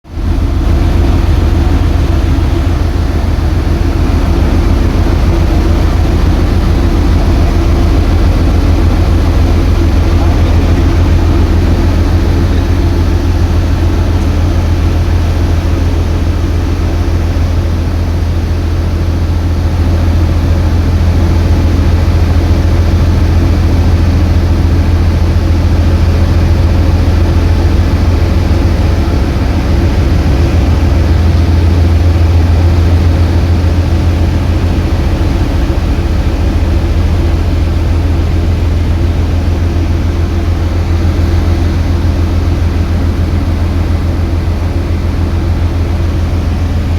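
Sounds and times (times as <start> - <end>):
ship engine droning: 0.0 - 46.9.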